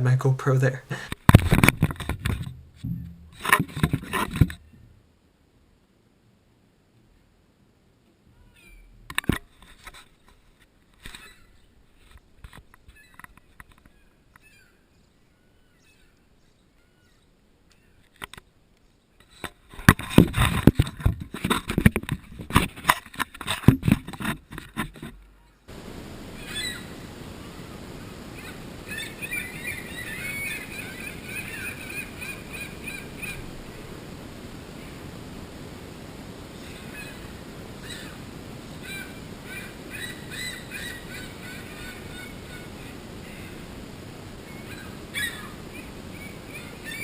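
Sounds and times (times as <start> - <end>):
outdoor hiss: 0.0 - 8.3, 25.6 - 47.0
loud knocks and clatter: 1.3 - 4.6
seagulls calling: 26.3 - 33.8, 36.5 - 43.7, 44.4 - 47.0.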